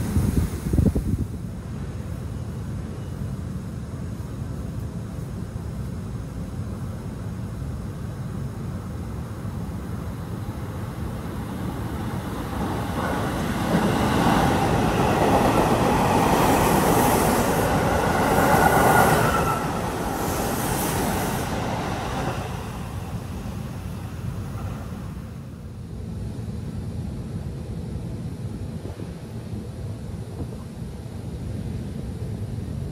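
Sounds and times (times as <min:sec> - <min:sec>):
train wheels rumbling on rails: 0:08.3 - 0:25.6.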